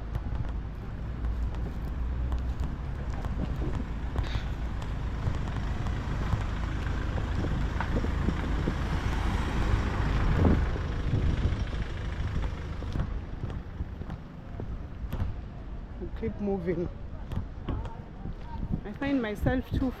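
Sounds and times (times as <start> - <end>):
traffic rumble: 0.0 - 20.0
vehicle passing close: 1.6 - 14.7.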